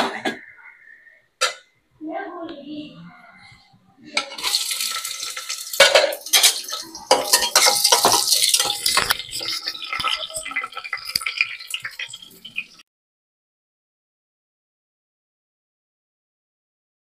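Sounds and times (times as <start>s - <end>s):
onion sizzling in hot oil: 4.2s - 12.8s
spatula scraping a metal pot: 4.2s - 12.8s.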